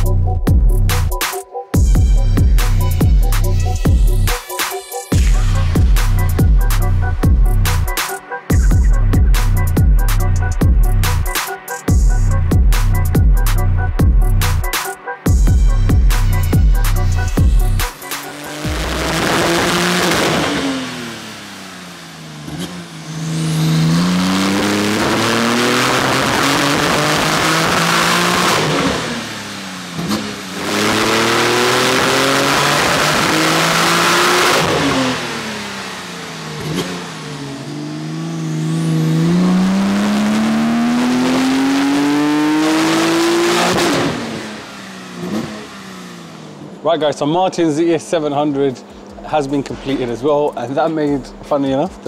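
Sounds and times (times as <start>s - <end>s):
car engine revving on dyno: 18.0s - 46.8s.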